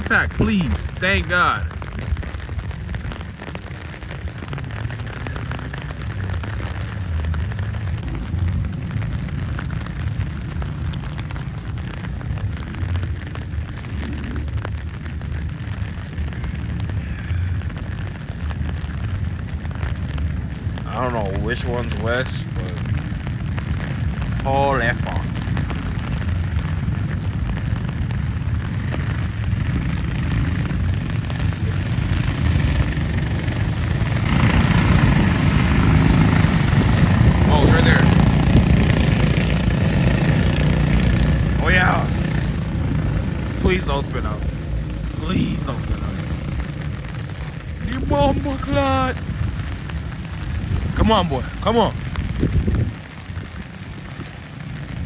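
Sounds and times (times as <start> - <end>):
rain patter: 0.0 - 55.0
wind buffeting microphone: 12.0 - 55.0
go-kart engines droning: 31.4 - 47.0.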